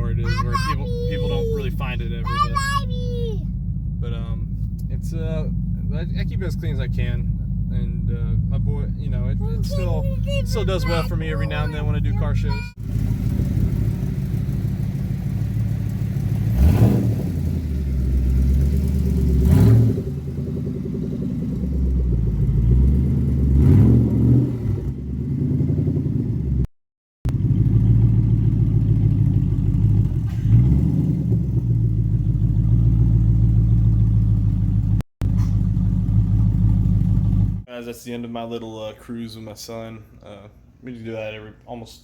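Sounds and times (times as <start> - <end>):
car engine exhaust surging: 3.4 - 26.6, 27.3 - 37.7.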